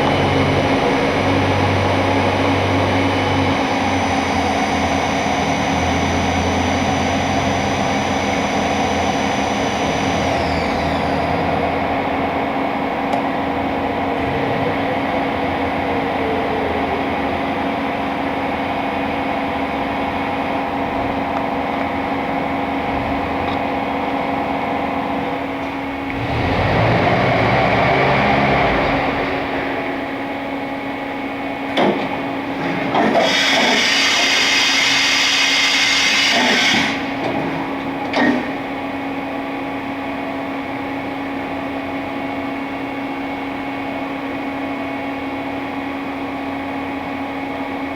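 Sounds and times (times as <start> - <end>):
motor whines: 0.0 - 30.7, 31.7 - 38.8
high whine gliding down: 0.0 - 40.4
machine mechanical hum: 0.0 - 47.9.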